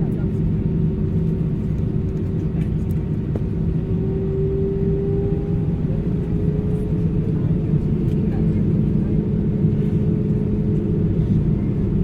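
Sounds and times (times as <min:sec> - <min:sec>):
engine rumble inside vehicle: 0:00.0 - 0:12.0.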